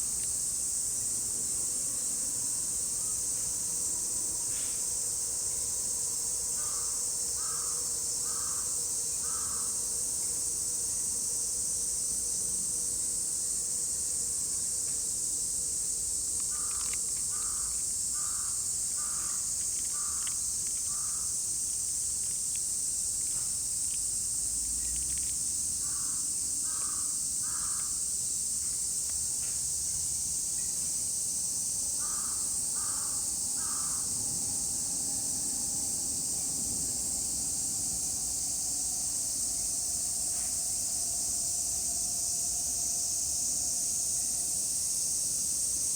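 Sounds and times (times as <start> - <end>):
cicadas singing: 0.0 - 45.9
crow cawing: 16.5 - 19.4, 25.9 - 27.9, 32.0 - 34.0.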